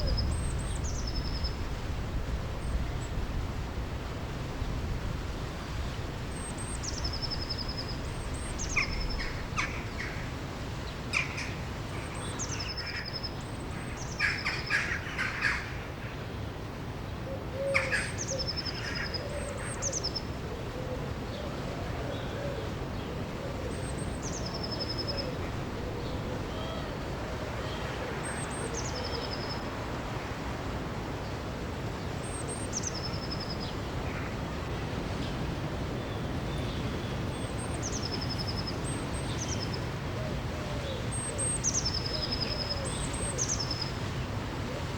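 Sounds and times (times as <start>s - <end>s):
rushing river water: 22.6s - 44.9s.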